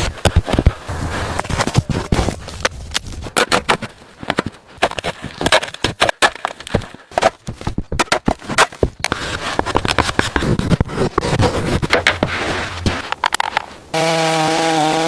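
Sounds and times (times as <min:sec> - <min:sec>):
sticks crackling and splintering: 0:00.0 - 0:13.8
wood knocking and cracking: 0:01.6 - 0:12.3.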